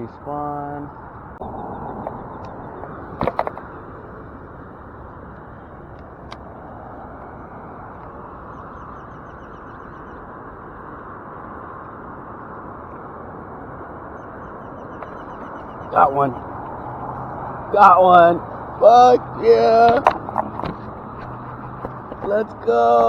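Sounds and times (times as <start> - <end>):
road traffic hum: 0.0 - 23.0
small birds chirping: 7.3 - 10.3, 14.1 - 23.0.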